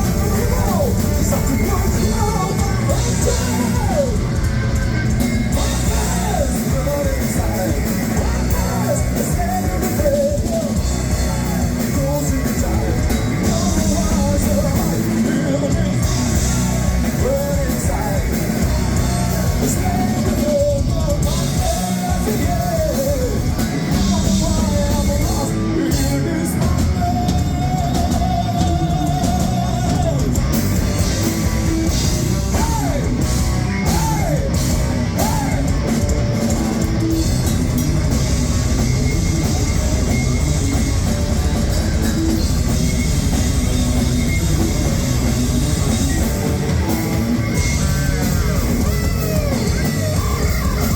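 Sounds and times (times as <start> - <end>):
person singing: 0.0 - 30.5, 32.1 - 36.7
distorted guitars: 0.0 - 50.9
drum kit: 0.0 - 50.9.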